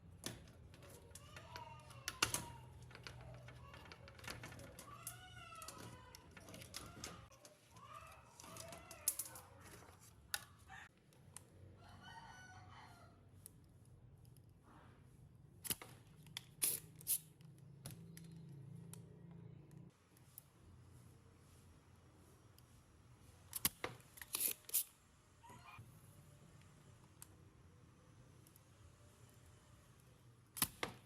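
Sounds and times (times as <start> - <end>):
rooster-like crow: 11.8 - 13.2.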